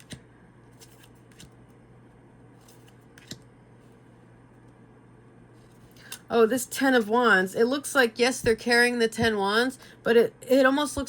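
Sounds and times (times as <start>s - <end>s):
cards clicking and tapping: 0.0s - 0.2s, 0.8s - 1.6s, 2.7s - 3.4s.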